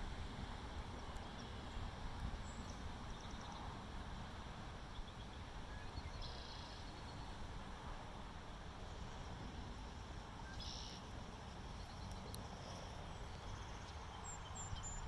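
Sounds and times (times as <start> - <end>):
faint high bird chirps: 10.5 - 11.0.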